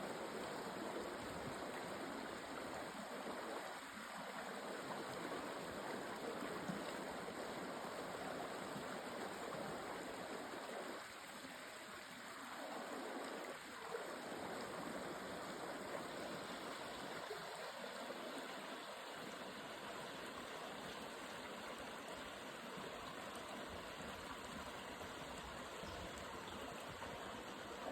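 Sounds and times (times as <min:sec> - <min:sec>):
stream flowing over rocks: 0:00.0 - 0:27.9.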